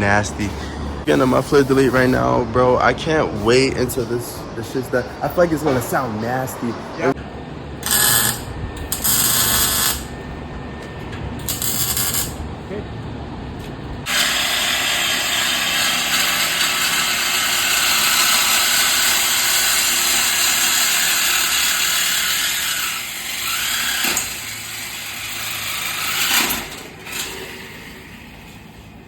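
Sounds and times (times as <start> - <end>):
power tool hissing: 7.8 - 10.2, 14.1 - 26.1.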